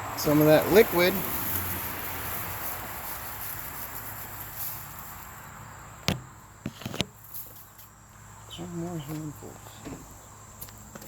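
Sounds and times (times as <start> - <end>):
sawdust rustling: 0.0 - 5.7.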